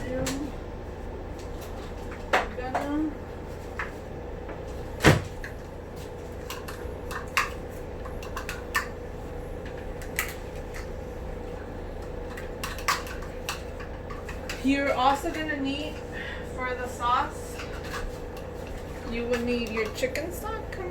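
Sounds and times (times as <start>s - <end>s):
steady low hum: 0.0s - 20.9s
cupboard door banging shut: 5.0s - 5.4s.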